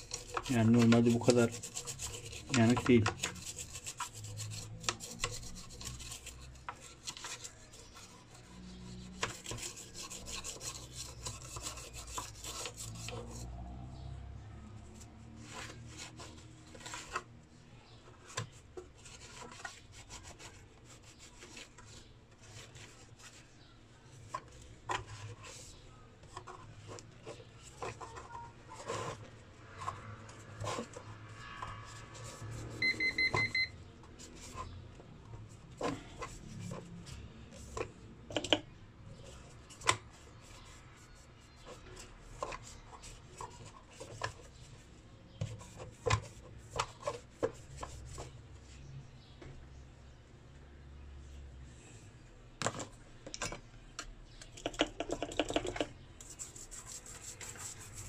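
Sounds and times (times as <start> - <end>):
scraping on circuit board: 0.0 - 13.8, 14.8 - 48.9, 54.4 - 58.0.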